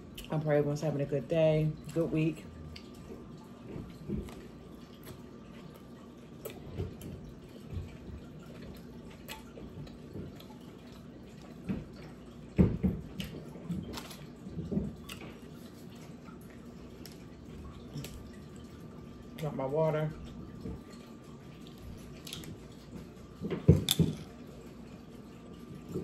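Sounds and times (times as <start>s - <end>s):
person chewing wetly: 2.6s - 12.2s.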